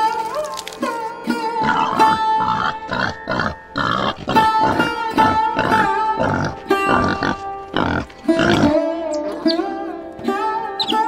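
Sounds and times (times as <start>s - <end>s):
wild boar grunting: 1.6s - 9.0s.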